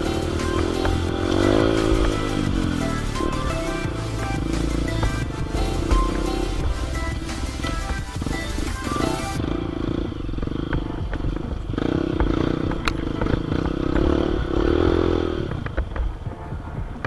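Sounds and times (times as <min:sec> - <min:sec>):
motorcycle engine revving: 0:00.0 - 0:16.2.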